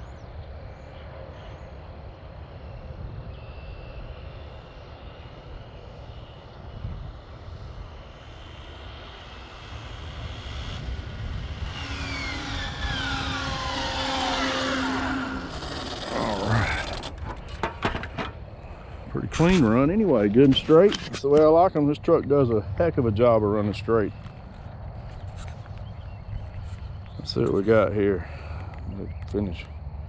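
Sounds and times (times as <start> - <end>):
low outdoor rumble: 4.4 - 30.0
electric motor whine: 9.4 - 18.3.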